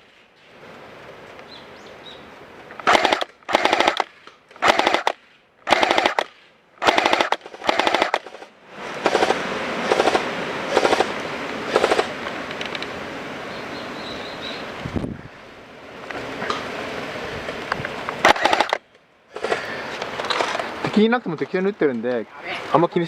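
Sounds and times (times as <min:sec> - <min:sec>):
airsoft guns firing bursts: 0:02.8 - 0:12.1, 0:18.2 - 0:18.8.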